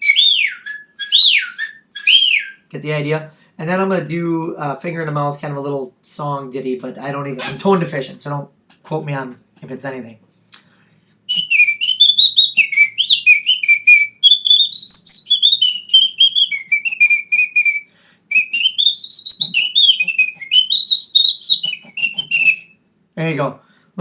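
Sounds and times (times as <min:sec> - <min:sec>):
man whistling a tune: 0:00.0 - 0:02.6, 0:11.3 - 0:22.8.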